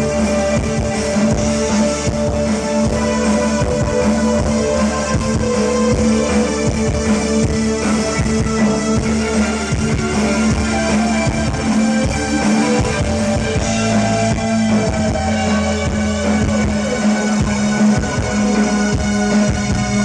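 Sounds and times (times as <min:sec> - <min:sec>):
drum kit: 0:00.0 - 0:20.0
electric guitar: 0:00.0 - 0:20.0
new wave band playing live: 0:00.0 - 0:20.0.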